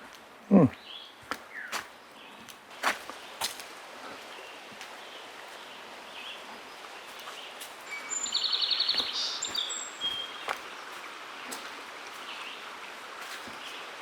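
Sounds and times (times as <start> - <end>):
footsteps on forest trail: 0.0 - 14.0
songbird singing with trill: 0.7 - 2.4, 4.3 - 10.9.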